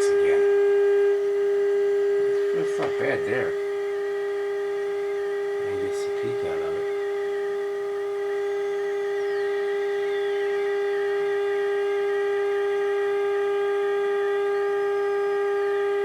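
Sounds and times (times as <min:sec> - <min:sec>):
test tone through radio speaker: 0:00.0 - 0:16.0.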